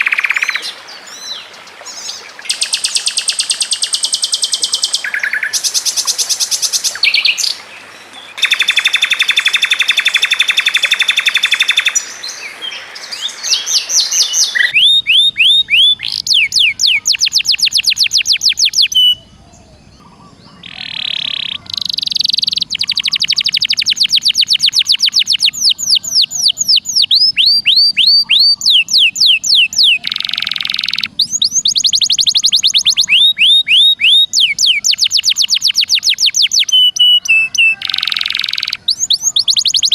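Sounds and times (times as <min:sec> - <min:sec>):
bird rapid trill: 0:00.0 - 0:00.6, 0:08.4 - 0:12.2, 0:13.2 - 0:19.2, 0:20.4 - 0:39.9
songbird whistled notes: 0:08.4 - 0:12.4, 0:13.0 - 0:19.3, 0:20.6 - 0:39.9.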